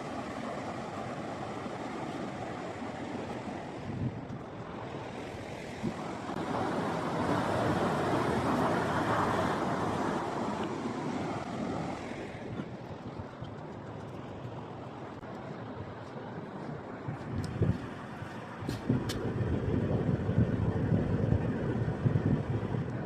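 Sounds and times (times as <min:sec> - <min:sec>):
ocean wave breaking: 0:00.0 - 0:12.7
wind buffeting microphone: 0:03.4 - 0:23.0.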